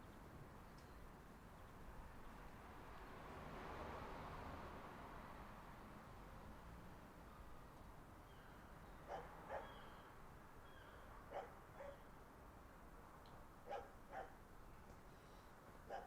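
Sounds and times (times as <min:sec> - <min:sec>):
distant dog barking: 0:09.0 - 0:09.9, 0:11.3 - 0:12.1, 0:13.6 - 0:14.4.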